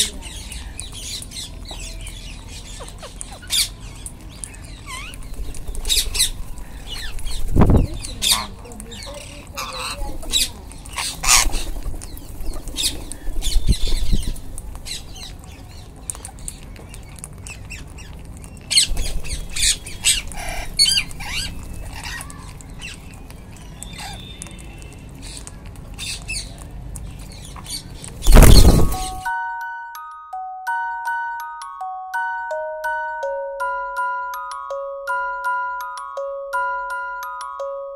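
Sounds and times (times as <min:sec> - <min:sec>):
parakeets squawking: 0:00.0 - 0:29.3
loud rustling burst: 0:28.2 - 0:29.2.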